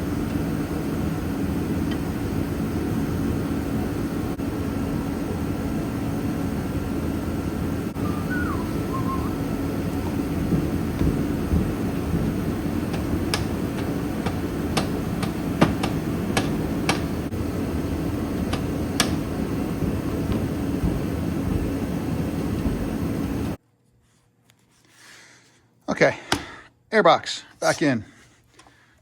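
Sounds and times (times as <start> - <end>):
low hum: 0.0 - 23.6
sharp clicks and knocks: 10.5 - 17.1, 18.5 - 19.3.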